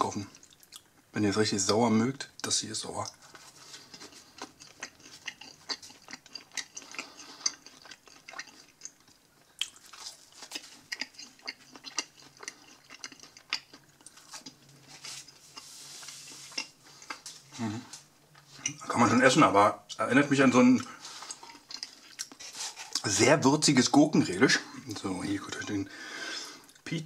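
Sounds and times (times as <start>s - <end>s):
person chewing close to microphone: 0.1s - 1.1s, 3.0s - 18.9s, 20.8s - 23.1s.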